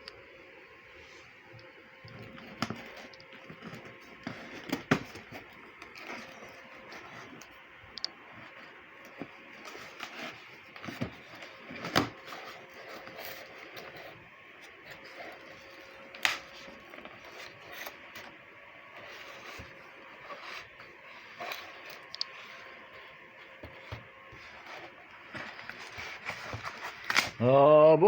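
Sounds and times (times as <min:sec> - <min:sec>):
faint electrical hum: 0:00.0 - 0:28.0
objects being handled: 0:01.2 - 0:27.4.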